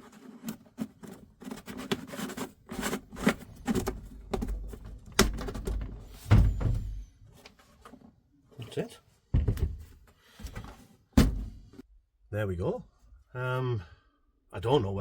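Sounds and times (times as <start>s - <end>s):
clicks knocks and scrapes of parts: 0.0s - 8.8s
heavy thumps: 3.7s - 7.0s, 11.2s - 11.6s.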